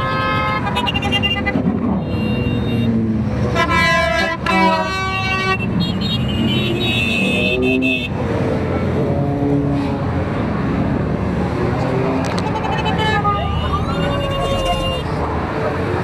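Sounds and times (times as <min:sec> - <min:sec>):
vehicle horns honking: 0:00.0 - 0:08.2, 0:12.3 - 0:15.1.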